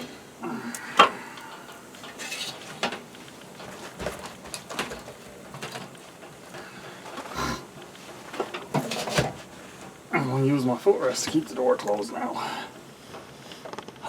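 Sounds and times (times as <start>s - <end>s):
metal objects clinking: 2.0s - 6.4s.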